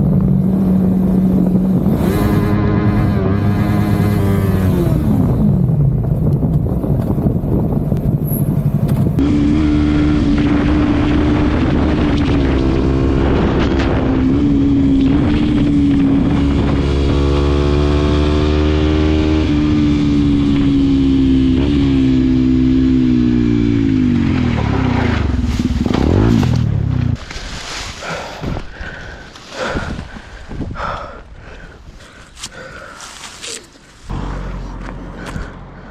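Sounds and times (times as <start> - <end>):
motorcycle engine cruising: 0.0 - 30.3, 32.1 - 35.9.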